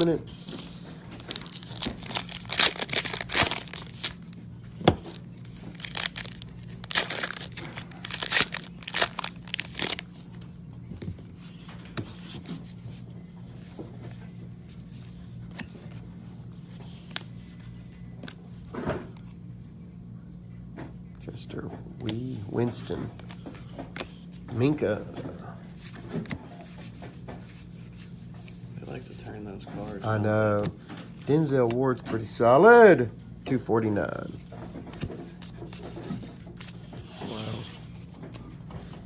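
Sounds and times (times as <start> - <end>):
low steady hum: 0.0 - 39.0
wrappers tearing and crinkling: 1.2 - 4.4, 5.1 - 10.1
cards rustling: 1.2 - 10.5.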